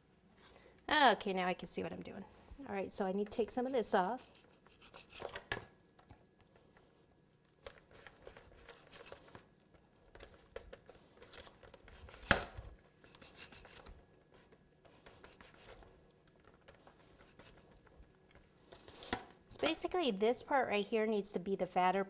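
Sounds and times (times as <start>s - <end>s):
knife cutting and scraping cake: 3.6s - 5.5s, 13.1s - 14.0s, 14.9s - 17.9s.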